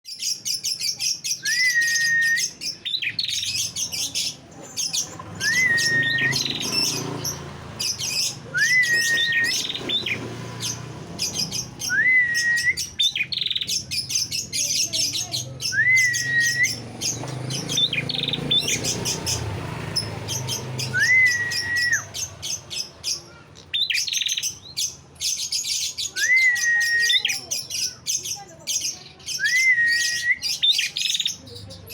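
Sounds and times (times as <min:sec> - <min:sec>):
bird whistle slurring up: 0:05.4 - 0:06.8, 0:08.5 - 0:10.2, 0:20.9 - 0:22.1.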